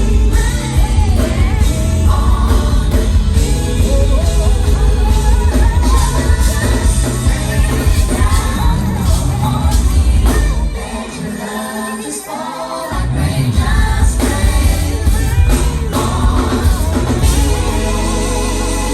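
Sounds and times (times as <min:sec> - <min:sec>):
heavy bass: 0:00.0 - 0:10.9, 0:13.0 - 0:18.9
live rhythm and blues band: 0:00.0 - 0:11.4, 0:12.9 - 0:18.9
woman singing: 0:00.0 - 0:18.9.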